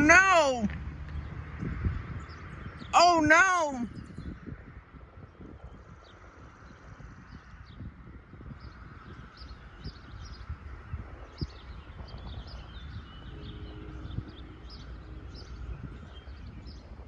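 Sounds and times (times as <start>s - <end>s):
small birds chirping: 0.0s - 17.0s
low outdoor rumble: 3.8s - 17.0s.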